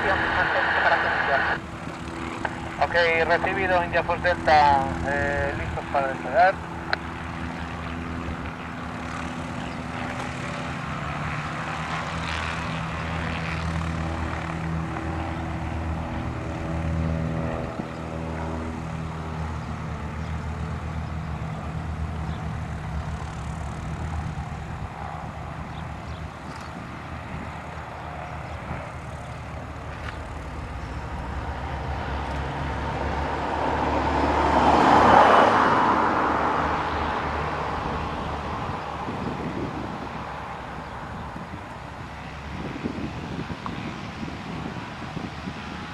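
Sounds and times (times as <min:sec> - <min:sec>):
propeller aircraft engine drone: 0:00.0 - 0:45.9.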